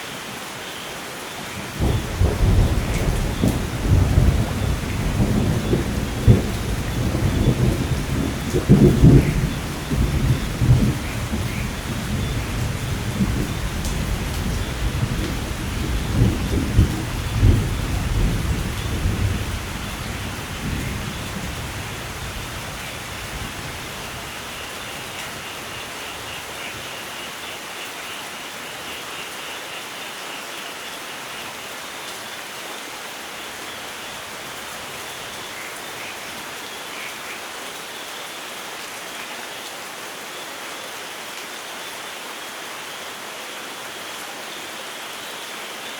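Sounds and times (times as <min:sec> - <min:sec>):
rain falling: 0:00.0 - 0:45.9
rolling thunder: 0:01.8 - 0:24.3.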